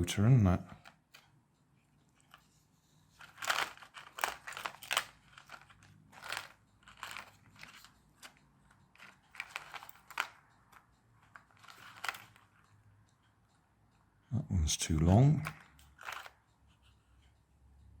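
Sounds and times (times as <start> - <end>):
plastic parts clicking and clattering: 3.2 - 12.5, 15.4 - 16.4.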